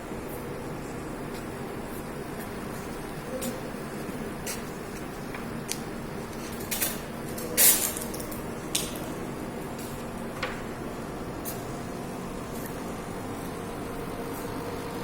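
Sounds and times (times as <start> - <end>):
water chiller humming: 8.3 - 15.0.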